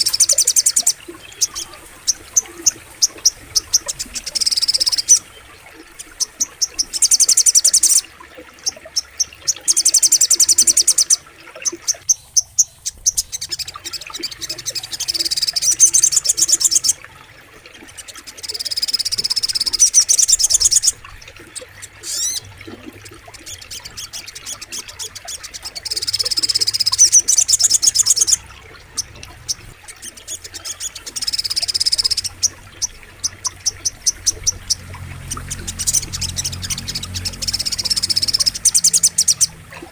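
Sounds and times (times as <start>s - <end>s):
high-pitched bird chirping: 0.0s - 5.4s, 18.4s - 21.0s, 23.7s - 39.6s
frogs and insects chorus: 0.0s - 8.0s.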